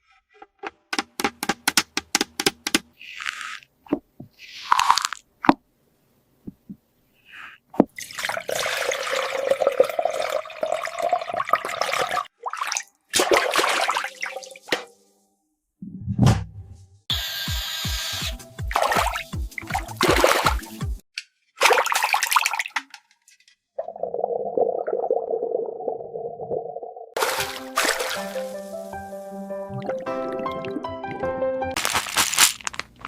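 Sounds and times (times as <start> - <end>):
water pouring into plastic tank: 8.0 - 14.6, 21.6 - 23.0, 27.2 - 28.6.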